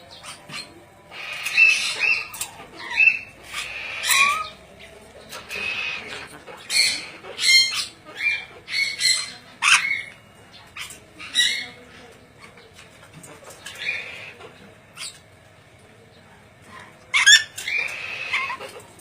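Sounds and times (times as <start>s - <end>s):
parrot squawking: 0.2s - 4.6s, 5.3s - 11.8s, 13.6s - 14.4s, 17.1s - 18.8s.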